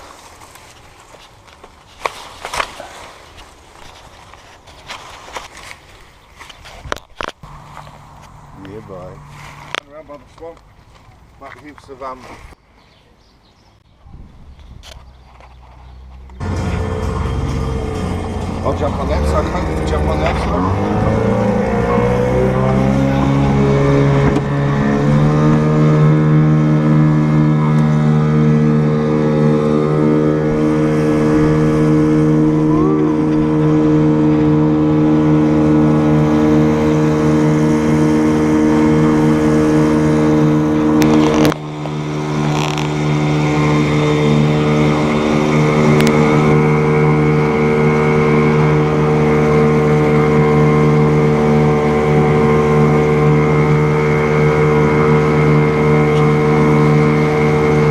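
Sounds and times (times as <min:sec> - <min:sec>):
vehicle engine revving high: 0:16.4 - 0:57.9.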